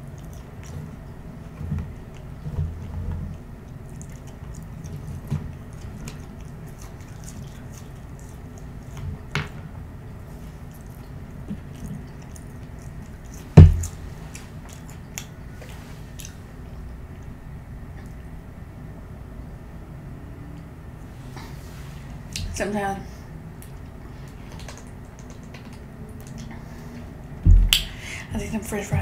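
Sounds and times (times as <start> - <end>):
chewing french fries: 0.0 - 9.3, 10.1 - 18.5, 23.6 - 27.4
loud dull thump: 13.6 - 13.9, 27.4 - 27.8.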